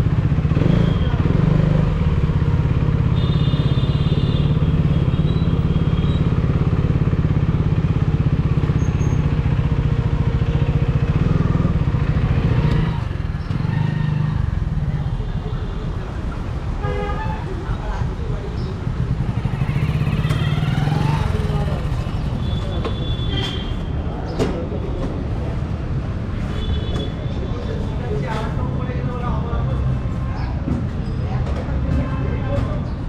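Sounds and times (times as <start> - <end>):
motorcycle engine running: 0.0 - 15.2, 18.5 - 23.7.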